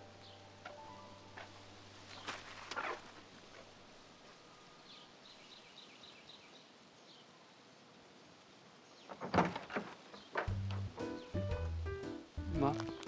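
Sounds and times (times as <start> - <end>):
small bird chirping: 0.0 - 1.2, 4.4 - 7.5, 10.1 - 11.7, 12.6 - 13.0.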